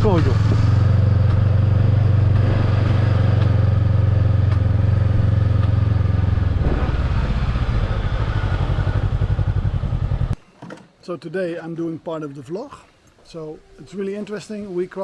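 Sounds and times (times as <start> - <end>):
motorcycle engine running: 0.0 - 10.4.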